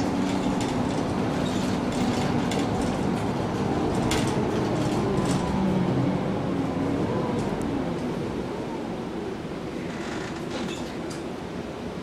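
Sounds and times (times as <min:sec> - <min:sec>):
bus diesel engine humming: 0:00.0 - 0:12.0
body clicks and rattles: 0:00.1 - 0:05.4.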